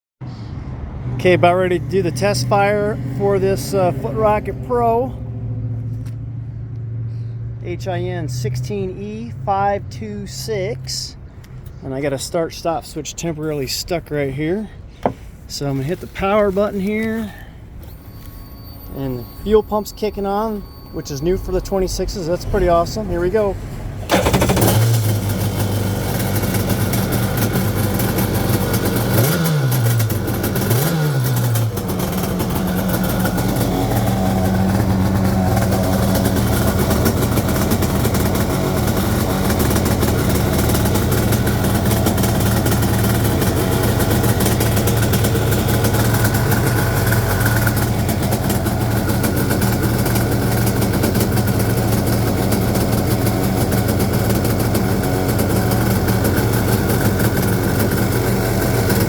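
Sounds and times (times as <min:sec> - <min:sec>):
jet ski engine running: 0:00.8 - 0:05.7, 0:17.8 - 0:59.0.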